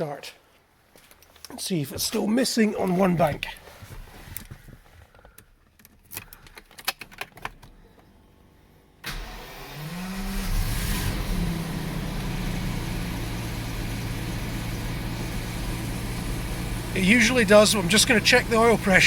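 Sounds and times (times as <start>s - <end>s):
car engine starting and idling: 6.1s - 19.0s.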